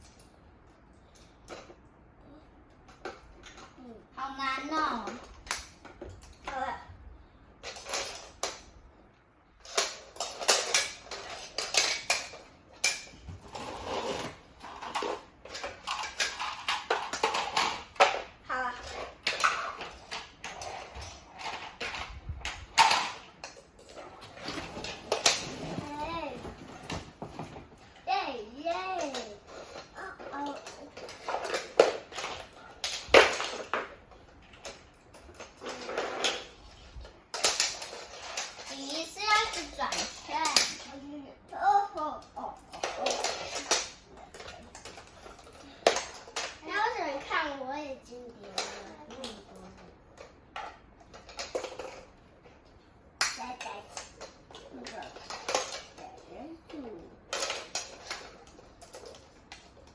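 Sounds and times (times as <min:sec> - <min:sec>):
toy parts clattering and clicking: 0:02.7 - 0:06.6, 0:07.6 - 0:08.8, 0:09.6 - 0:59.9
rustling: 0:09.6 - 0:41.0.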